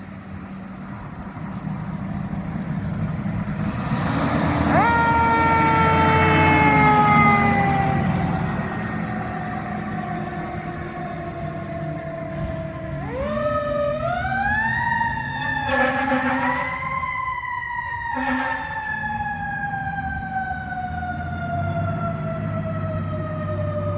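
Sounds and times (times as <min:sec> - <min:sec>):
truck engine rumble: 0:00.0 - 0:23.9
mechanical fire siren wailing: 0:04.3 - 0:23.9
truck horn blasts: 0:04.6 - 0:07.6, 0:15.6 - 0:17.0, 0:18.2 - 0:18.8.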